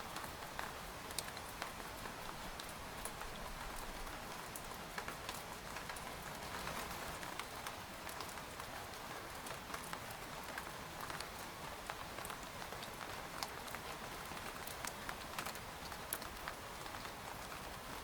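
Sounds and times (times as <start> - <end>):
rain hissing on a tent: 0.0 - 18.0
raindrops ticking on fabric: 0.1 - 18.0.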